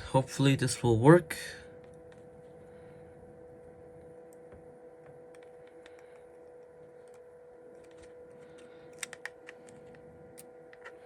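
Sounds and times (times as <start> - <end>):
steady electrical hum: 0.0 - 11.0
small parts clicking and tapping: 5.0 - 11.0.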